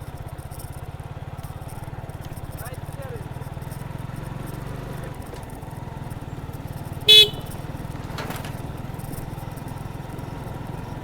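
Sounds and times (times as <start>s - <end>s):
motorcycle engine running: 0.0s - 11.0s
horn beep: 7.1s - 8.5s.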